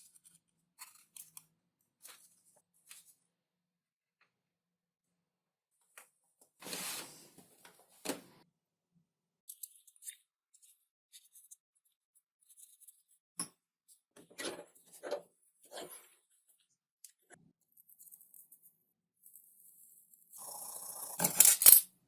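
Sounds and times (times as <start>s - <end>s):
material rustling and scraping: 6.6s - 8.0s.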